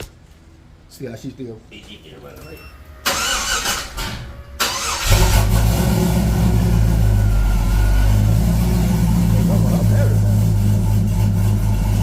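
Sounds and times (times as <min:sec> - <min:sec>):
car engine starter cranking: 0:03.0 - 0:05.8
car engine idling: 0:03.0 - 0:12.0.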